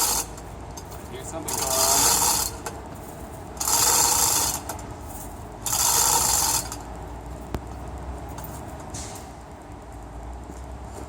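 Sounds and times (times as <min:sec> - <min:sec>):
ratchet and chain rasping: 0:00.0 - 0:00.4, 0:01.0 - 0:02.7, 0:03.6 - 0:06.9.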